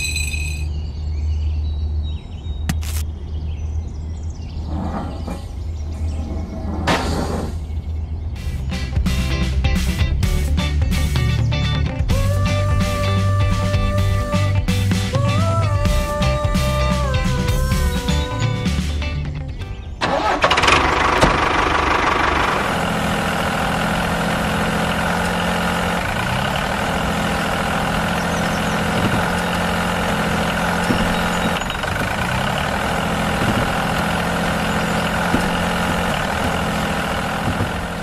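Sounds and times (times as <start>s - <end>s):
tractor engine starting and running: 20.0s - 38.0s.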